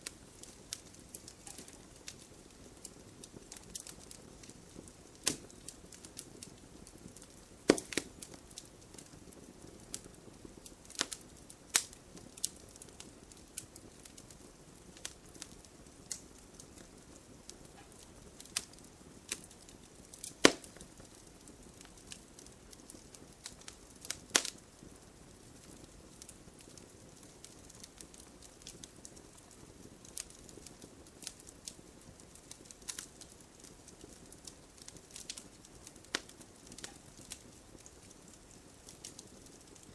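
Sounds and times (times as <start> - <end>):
bonfire popping and snapping: 0.0 - 39.9
fire hiss: 0.0 - 39.9.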